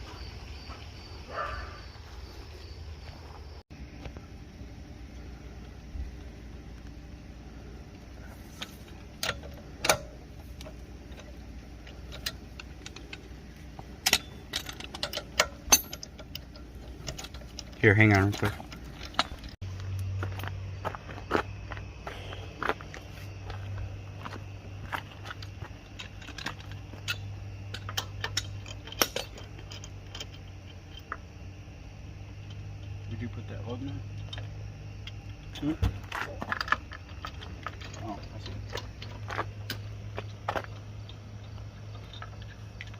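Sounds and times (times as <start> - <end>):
steady low hum: 0.0 - 42.9
metal tools clinking: 8.2 - 19.6, 25.0 - 31.2, 32.4 - 42.9
metallic clinks of tools: 14.0 - 19.6.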